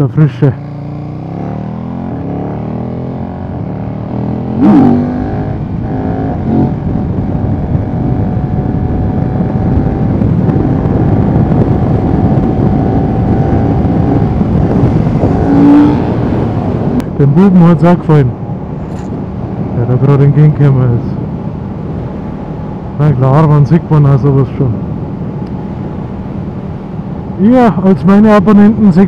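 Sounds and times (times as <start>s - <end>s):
rushing wind noise: 0.0s - 29.0s
motorcycle engine accelerating: 0.4s - 20.0s.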